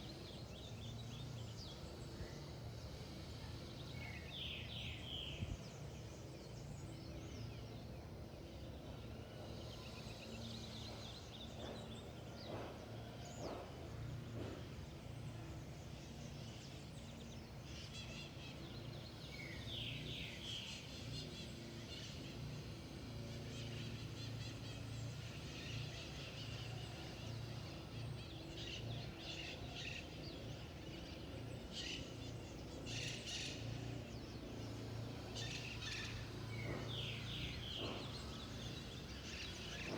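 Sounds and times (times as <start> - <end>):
birds calling: 17.3 - 39.9.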